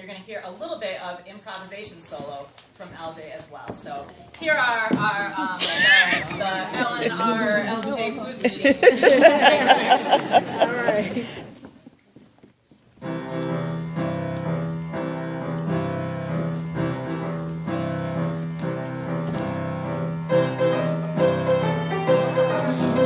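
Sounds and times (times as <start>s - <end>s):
piano duet playing blues: 13.0s - 23.0s.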